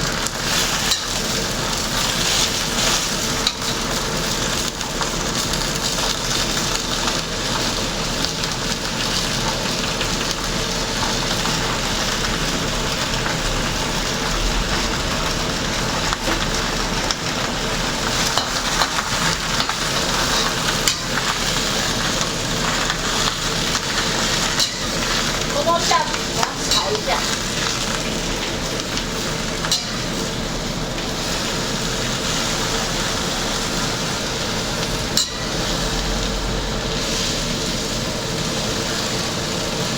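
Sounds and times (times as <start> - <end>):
food sizzling in hot oil: 0.0 - 39.9.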